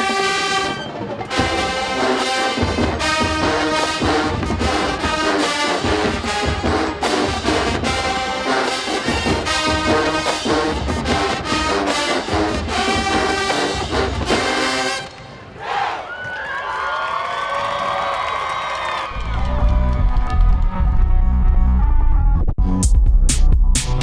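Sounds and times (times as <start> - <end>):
marching band playing: 0.0 - 15.5
brass horns: 0.0 - 16.0
bass and snare drums: 1.3 - 15.0, 22.6 - 24.0.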